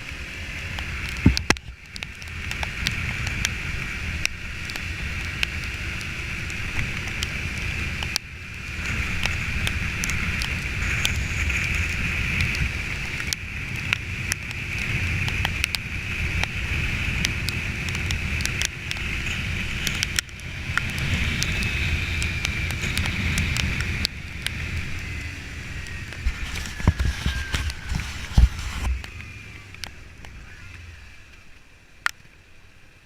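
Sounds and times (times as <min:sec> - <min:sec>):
motorcycle engine rumble: 0:00.0 - 0:33.0
wind noise on microphone: 0:00.8 - 0:31.2
sharp ticks: 0:04.2 - 0:25.1.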